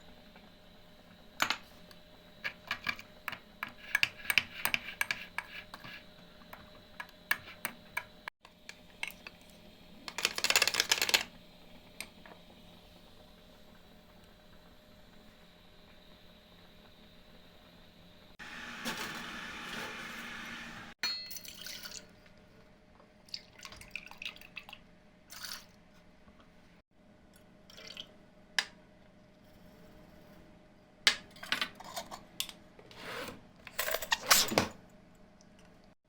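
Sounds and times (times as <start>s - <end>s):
utensils clinking against dishes: 21.0s - 22.0s.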